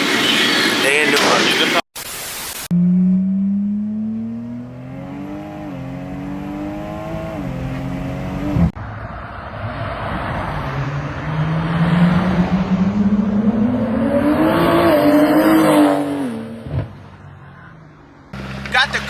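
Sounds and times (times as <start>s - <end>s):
car engine accelerating hard: 2.7s - 17.0s, 18.3s - 19.0s.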